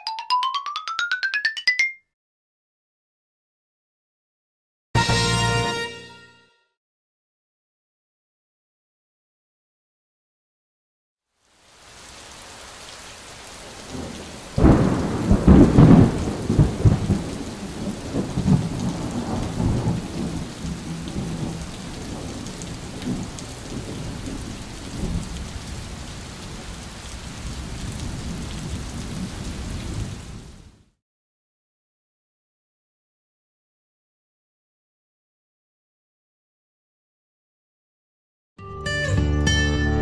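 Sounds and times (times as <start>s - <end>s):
steady rain hiss: 11.3s - 30.9s
thunder crack and rumble: 13.9s - 26.7s.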